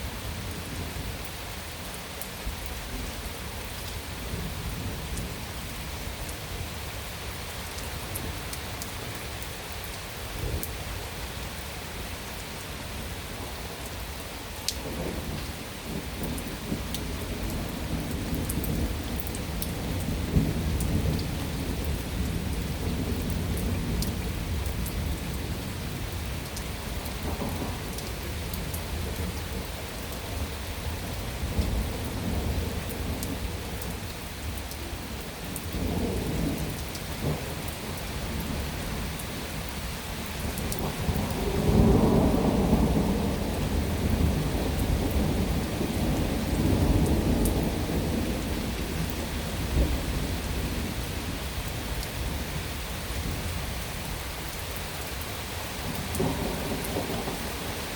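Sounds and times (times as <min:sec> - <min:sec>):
heavy rain: 0:00.0 - 0:57.9
rolling thunder: 0:14.8 - 0:26.1, 0:26.9 - 0:30.4, 0:40.3 - 0:52.5, 0:55.8 - 0:57.9.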